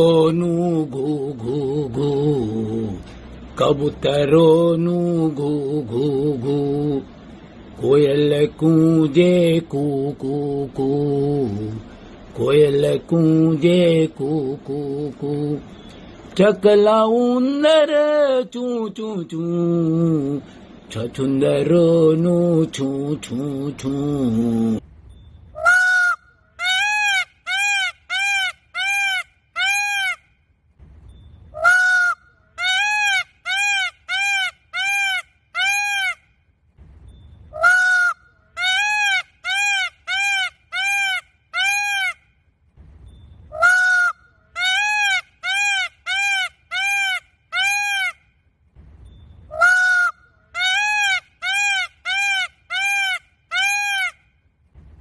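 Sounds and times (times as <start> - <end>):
bird calling: 24.3 - 30.4, 31.0 - 36.4, 37.1 - 42.4, 43.0 - 48.4, 49.0 - 54.4.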